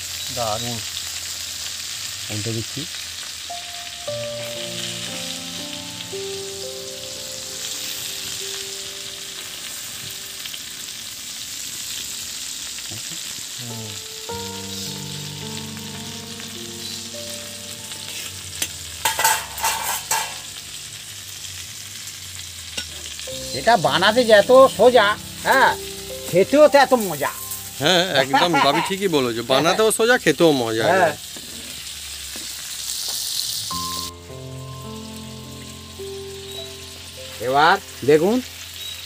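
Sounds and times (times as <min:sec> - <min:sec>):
chicken sizzling in a pan: 0:00.0 - 0:39.0
utensil clattering against pan: 0:19.0 - 0:20.5.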